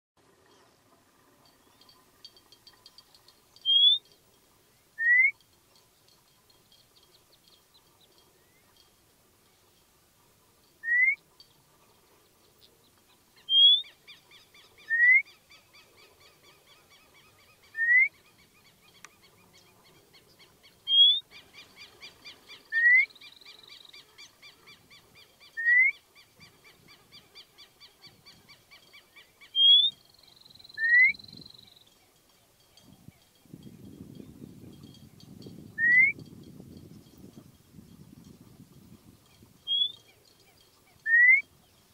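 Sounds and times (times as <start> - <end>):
bird whistling rising notes: 3.6 - 4.0, 5.0 - 5.4, 10.8 - 11.2, 13.5 - 13.9, 14.9 - 15.3, 17.7 - 18.2, 22.7 - 23.2, 25.6 - 26.0, 30.8 - 31.3, 35.8 - 36.2, 39.7 - 40.0, 41.1 - 41.5.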